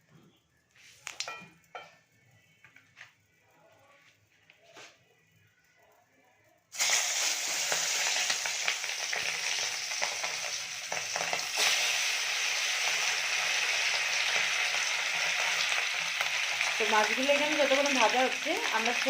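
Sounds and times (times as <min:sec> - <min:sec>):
fish sizzling in hot oil: 0:06.7 - 0:19.0.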